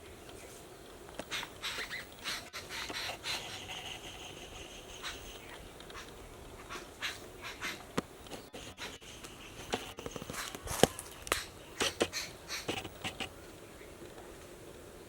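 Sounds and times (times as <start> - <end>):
footsteps crunching on leaves: 10.3 - 11.5.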